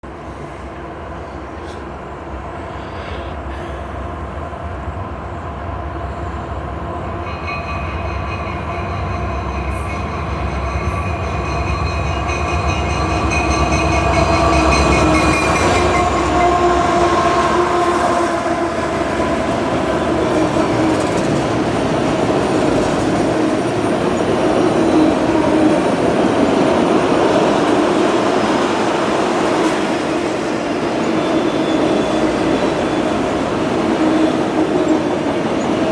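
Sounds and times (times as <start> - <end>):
train wheels on rails: 5.6 - 35.9
locomotive horn tones: 14.8 - 18.8.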